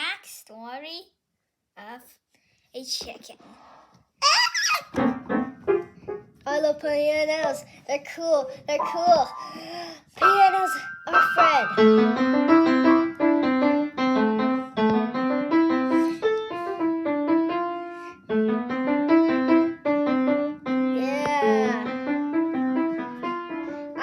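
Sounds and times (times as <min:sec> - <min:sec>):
piano melody of short notes: 0:08.8 - 0:24.0.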